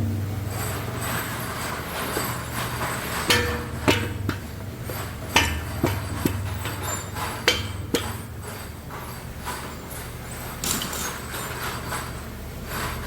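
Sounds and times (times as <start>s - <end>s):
steady low hum: 0.0s - 13.0s
metal tools knocking and clinking: 2.0s - 12.2s.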